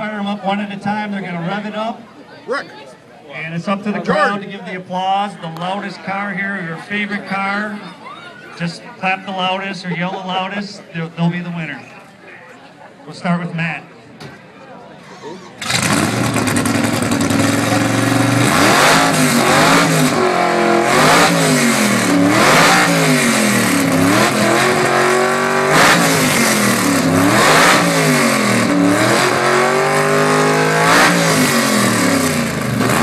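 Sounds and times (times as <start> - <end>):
supercharged engine revving: 15.6 - 33.0.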